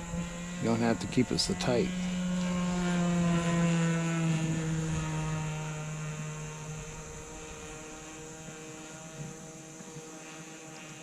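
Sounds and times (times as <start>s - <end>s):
model plane engine drone: 0.0s - 11.0s.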